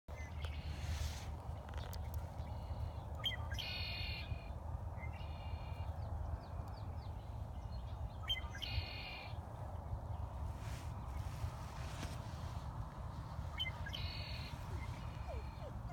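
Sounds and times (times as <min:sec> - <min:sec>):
steady low rumble: 0:00.1 - 0:15.9
buzzy harsh bird calls: 0:02.4 - 0:04.5, 0:13.4 - 0:15.9.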